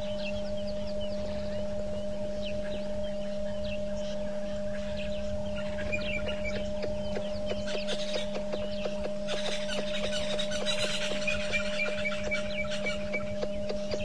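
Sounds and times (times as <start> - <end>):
low electrical hum: 0.0 - 14.0
wild birds chirping: 0.0 - 14.0
bird clucking notes: 4.6 - 14.0.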